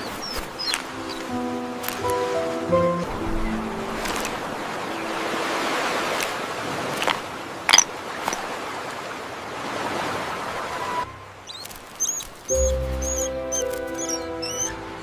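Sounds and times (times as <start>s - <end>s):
rushing water: 0.0s - 15.0s
faint high squeaks: 10.8s - 14.8s.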